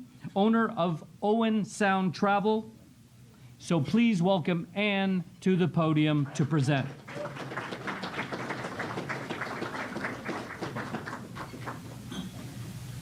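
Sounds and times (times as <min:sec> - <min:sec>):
audience applauding: 0:06.2 - 0:12.1.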